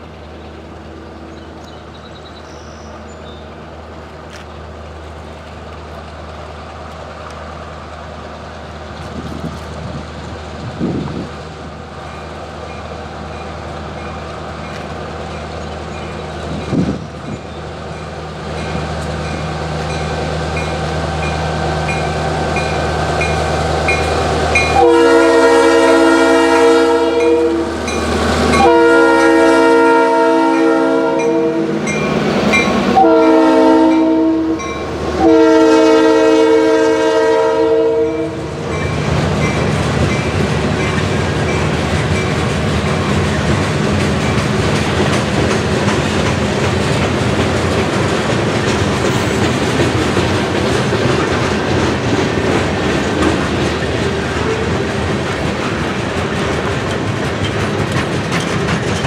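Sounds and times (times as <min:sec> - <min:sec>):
locomotive engine rumble: 0:00.0 - 0:59.0
crossing bell dinging: 0:12.1 - 0:25.0, 0:26.5 - 0:29.0, 0:30.5 - 0:33.1, 0:33.9 - 0:34.9, 0:38.1 - 0:43.1
locomotive air horn blasts: 0:24.6 - 0:27.9, 0:28.5 - 0:31.8, 0:33.0 - 0:38.6.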